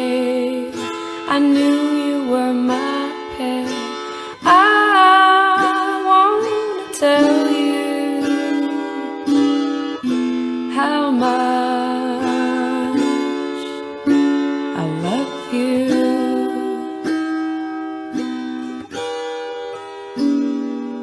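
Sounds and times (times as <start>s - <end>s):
woman singing: 0.0s - 9.7s, 10.7s - 17.7s
acoustic guitar strumming: 0.0s - 21.0s.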